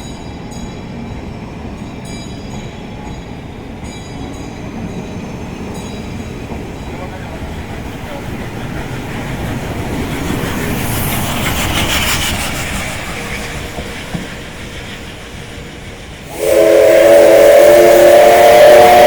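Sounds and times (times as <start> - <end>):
train rumbling on rails: 0.0 - 19.0
locomotive whistle blast: 16.3 - 19.0.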